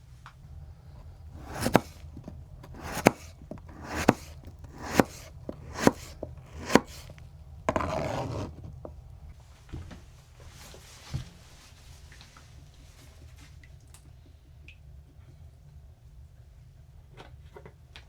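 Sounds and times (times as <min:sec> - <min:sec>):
scrape across cutting board: 0:01.4 - 0:07.1, 0:07.7 - 0:08.7
knife chopping on wooden board: 0:01.4 - 0:08.6.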